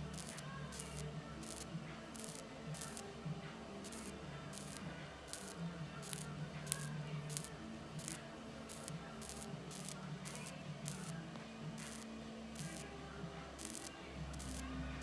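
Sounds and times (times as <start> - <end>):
plasma pen crackling hisses: 0.0 - 12.9, 13.6 - 15.0.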